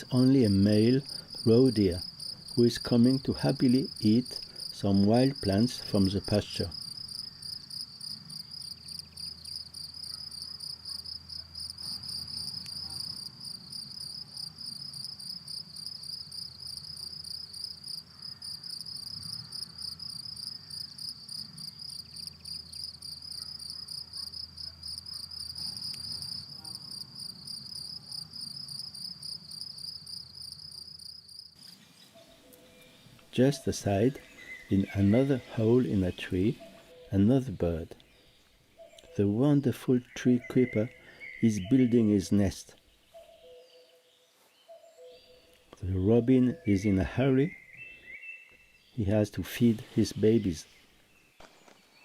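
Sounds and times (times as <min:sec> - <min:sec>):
crickets trilling: 0:00.1 - 0:31.8.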